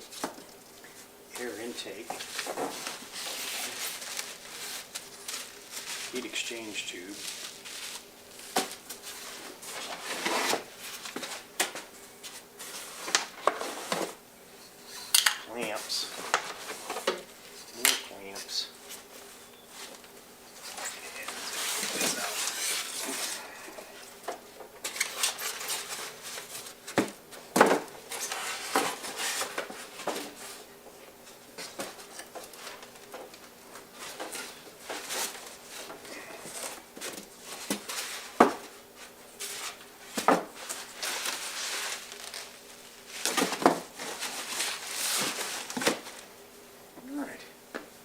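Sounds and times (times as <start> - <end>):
packaging rustling and creaking: 2.0 - 11.9, 19.7 - 24.1, 24.8 - 27.0, 39.4 - 46.3.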